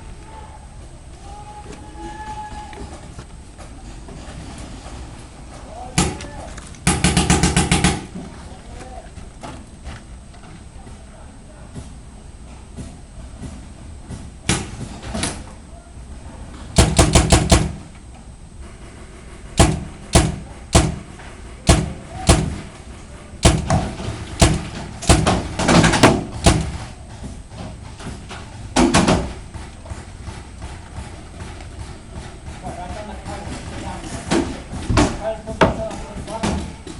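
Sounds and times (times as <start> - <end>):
paintball markers firing: 16.8 - 17.9, 19.6 - 22.7, 23.4 - 26.9.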